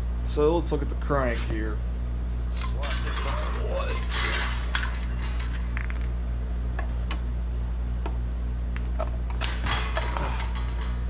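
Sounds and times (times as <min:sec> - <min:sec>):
steady low hum: 0:00.0 - 0:11.0
metal parts clinking: 0:02.5 - 0:06.1, 0:09.3 - 0:11.0.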